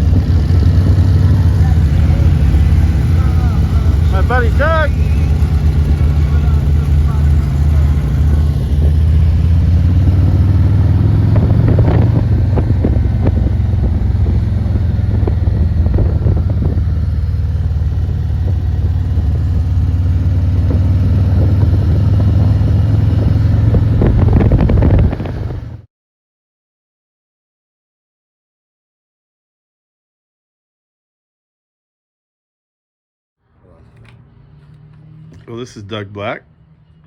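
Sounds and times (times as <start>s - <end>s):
wind buffeting microphone: 0.0s - 25.8s
motorcycle engine cruising: 0.0s - 25.9s, 33.6s - 37.0s.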